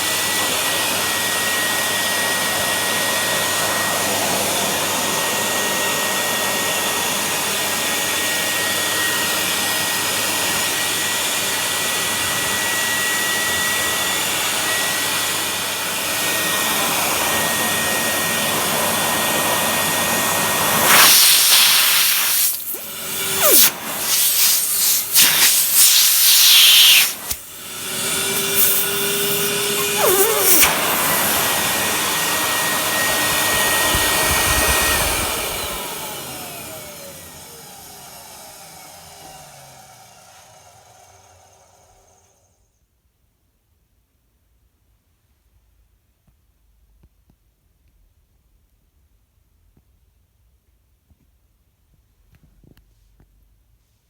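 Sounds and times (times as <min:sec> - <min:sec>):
vacuum cleaner running: 0:00.0 - 0:42.6.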